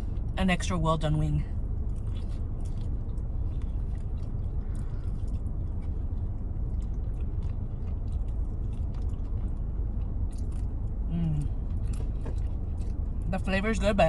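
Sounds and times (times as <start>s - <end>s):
car cabin rumble: 0.0s - 14.0s
chewing chicken wing: 1.9s - 13.2s.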